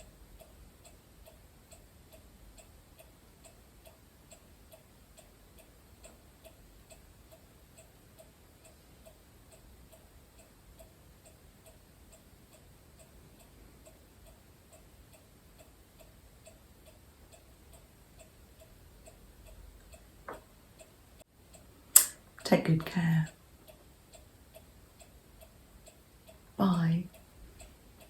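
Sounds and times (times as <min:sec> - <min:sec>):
clock ticking faintly: 0:00.0 - 0:28.0.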